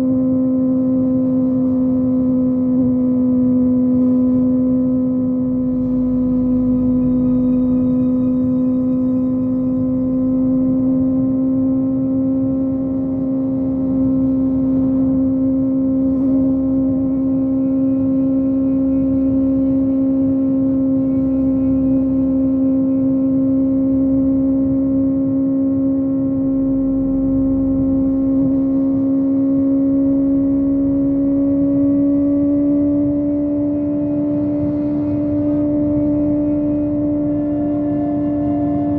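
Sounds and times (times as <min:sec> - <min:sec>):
wind and road rush: 0:11.7 - 0:38.9
motorcycle engine at high revs: 0:27.6 - 0:38.9.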